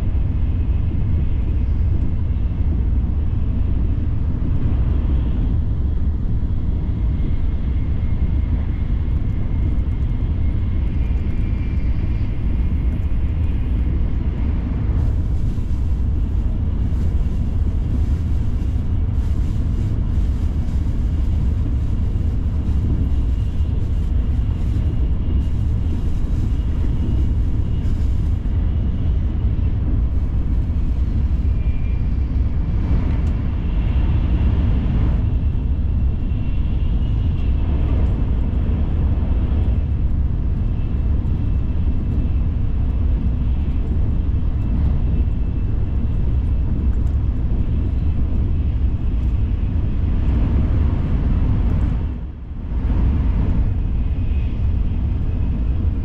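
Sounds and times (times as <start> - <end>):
train deep rumble: 0.0 - 56.0
faint high whine: 6.7 - 38.1.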